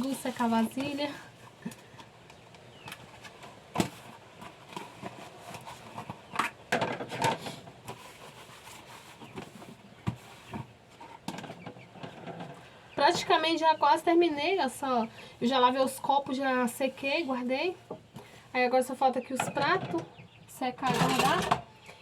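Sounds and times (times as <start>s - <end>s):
dishes clinking and knocking: 20.9s - 21.7s.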